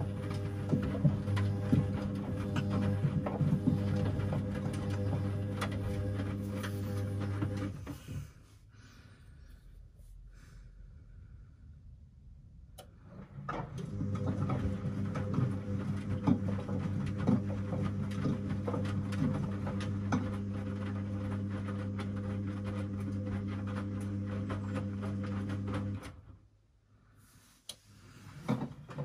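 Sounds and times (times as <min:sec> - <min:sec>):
washing machine running: 0:00.0 - 0:08.3, 0:13.0 - 0:26.3.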